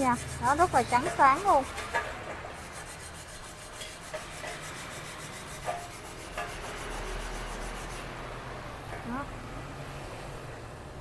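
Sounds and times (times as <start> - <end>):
rubbing and scraping on steel: 0.0 - 8.3.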